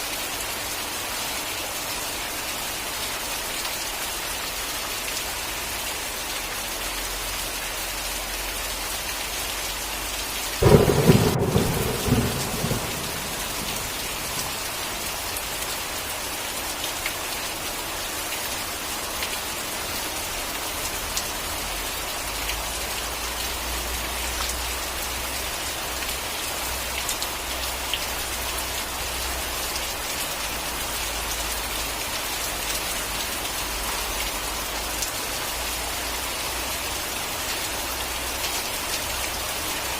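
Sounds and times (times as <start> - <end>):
heavy rain falling: 0.0 - 39.9
thunderclap: 10.6 - 14.8
distant thunder rumble: 10.6 - 15.2.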